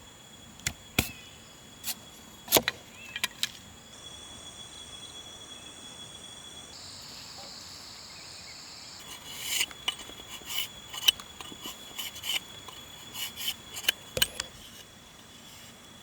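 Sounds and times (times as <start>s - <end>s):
crickets chirring: 0.0s - 16.0s
short scraping strokes: 9.0s - 15.8s.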